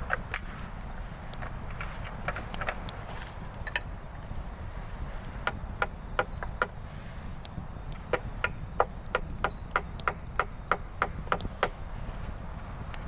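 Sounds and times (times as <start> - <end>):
wind rumbling on microphone: 0.0 - 13.0
hand tool striking wood: 5.4 - 6.8, 7.9 - 11.8.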